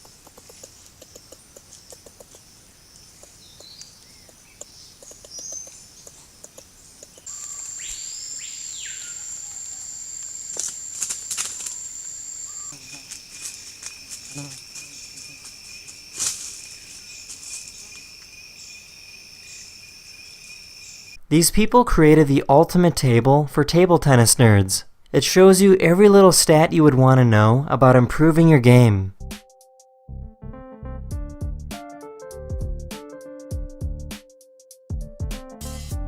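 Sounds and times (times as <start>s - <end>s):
sharp clicks: 0.0s - 2.4s, 3.2s - 7.3s
insects buzzing: 0.0s - 21.2s
bird call sweeping up and down: 7.2s - 13.0s.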